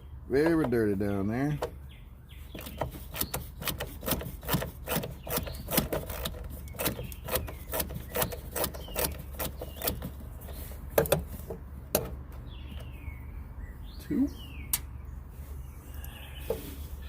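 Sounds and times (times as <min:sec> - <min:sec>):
ratchet clicking: 0:02.6 - 0:10.1.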